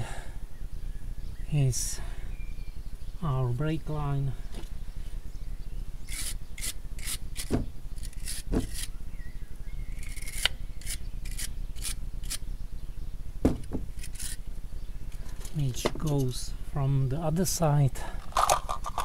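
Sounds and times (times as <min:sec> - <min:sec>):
scraping and rubbing strokes: 0:06.1 - 0:09.0, 0:10.0 - 0:12.4, 0:13.9 - 0:14.5.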